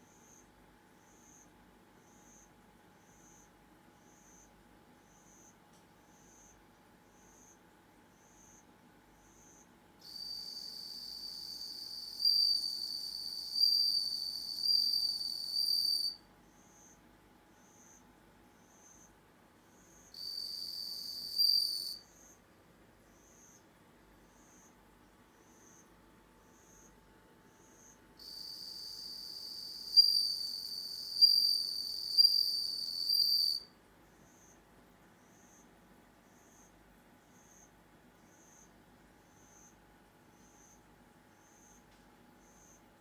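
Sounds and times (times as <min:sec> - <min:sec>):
cricket trilling: 0:09.4 - 0:17.0, 0:19.8 - 0:22.4, 0:27.7 - 0:33.7.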